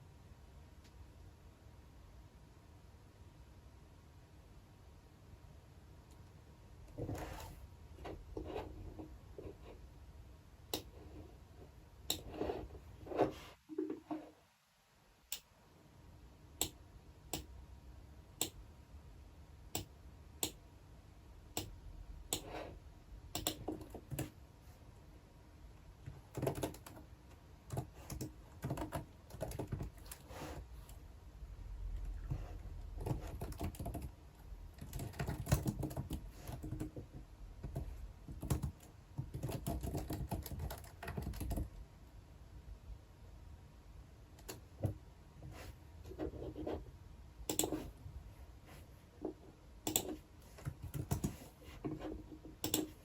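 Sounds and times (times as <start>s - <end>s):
typing on computer keyboard: 23.3s - 24.3s, 26.1s - 27.1s, 27.7s - 30.2s, 33.0s - 37.0s, 37.6s - 41.7s, 47.5s - 47.8s, 49.9s - 51.4s, 52.6s - 53.0s.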